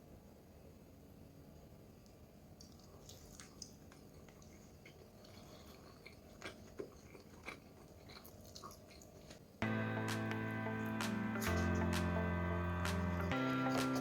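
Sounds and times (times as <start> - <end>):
soft clicks of food handling: 2.0 - 7.6
wet squishes of raw food: 2.6 - 9.6.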